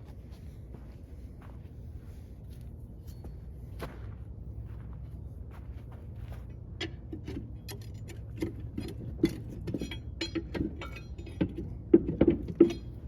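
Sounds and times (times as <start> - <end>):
steady low hum: 0.0 - 13.0
metal tools clinking and knocking: 6.8 - 13.0.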